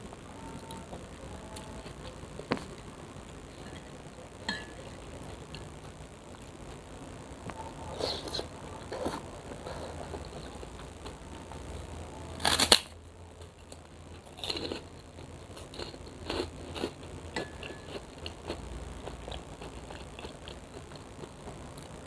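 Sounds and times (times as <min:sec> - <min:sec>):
chewing noodles: 0:13.4 - 0:22.0.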